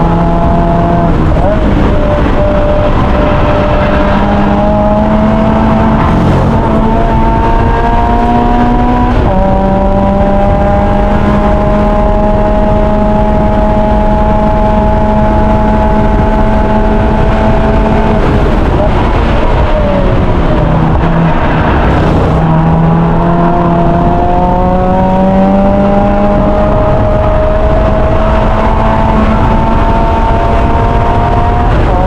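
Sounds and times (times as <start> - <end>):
car engine accelerating hard: 0.0 - 32.0.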